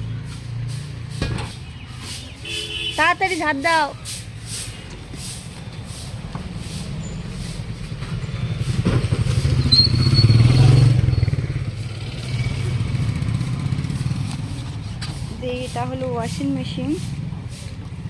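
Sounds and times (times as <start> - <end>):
vehicle engine passing: 0.0 - 18.0
thin high squeal: 9.4 - 11.4.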